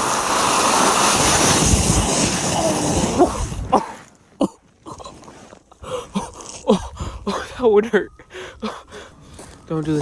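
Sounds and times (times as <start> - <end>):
fast slide over snow: 0.0 - 4.1
wind on microphone: 1.1 - 3.8, 6.7 - 7.3.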